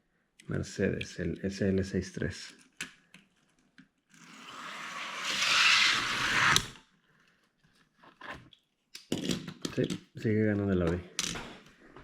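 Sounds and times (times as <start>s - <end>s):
toy cars rolling on track: 5.0s - 6.7s.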